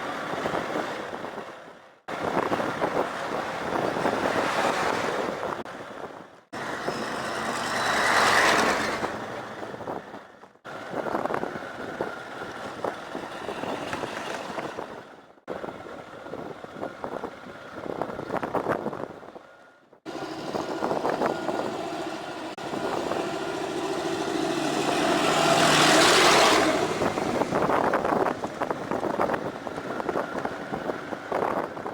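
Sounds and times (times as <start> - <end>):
wind: 0.0 - 31.9
motorbike engine: 20.1 - 31.7.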